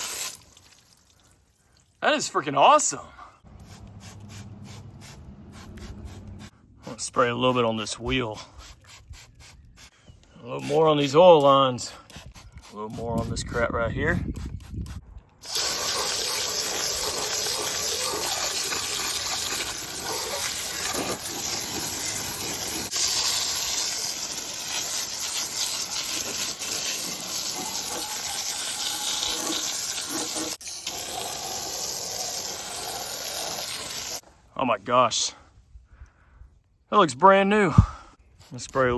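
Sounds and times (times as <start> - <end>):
hissing liquid spray: 0.0 - 1.0, 3.6 - 6.5, 15.4 - 34.2.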